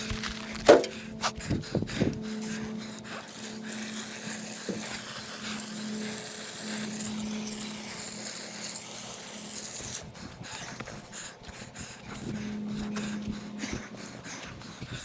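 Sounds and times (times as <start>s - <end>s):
water spraying from hose nozzle: 2.4s - 10.1s.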